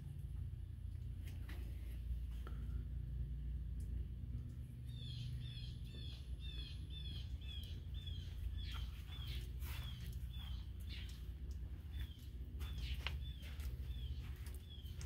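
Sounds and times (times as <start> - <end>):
steady low rumble: 0.0 - 15.0
songbird chirping and whistling: 4.9 - 11.2.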